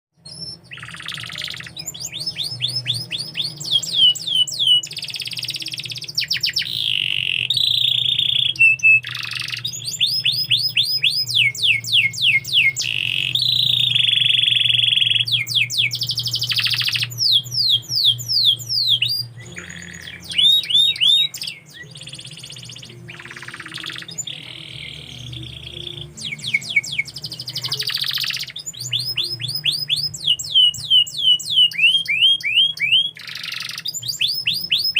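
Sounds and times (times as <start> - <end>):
canary singing trills: 0.2 - 34.9.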